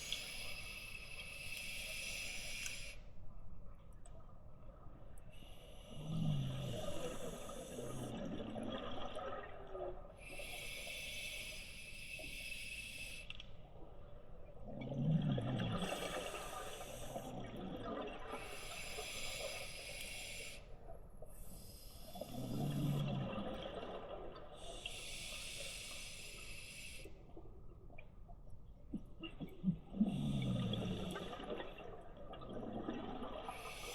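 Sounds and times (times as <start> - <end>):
bubbles gurgling: 22.4 - 24.5, 29.3 - 33.9.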